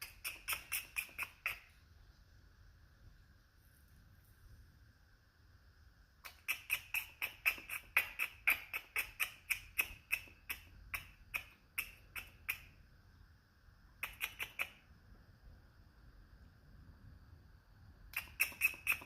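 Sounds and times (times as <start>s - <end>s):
squirrel chattering: 0.0s - 1.8s, 6.2s - 12.9s, 13.9s - 15.0s, 18.1s - 19.0s.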